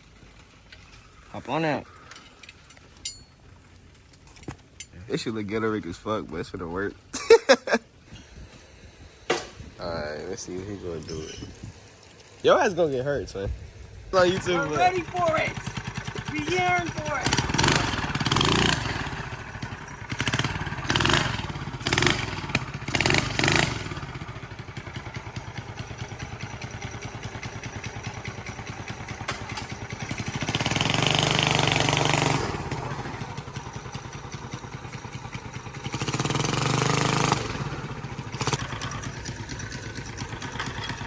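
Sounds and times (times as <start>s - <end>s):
minibike engine revving: 14.2s - 41.0s.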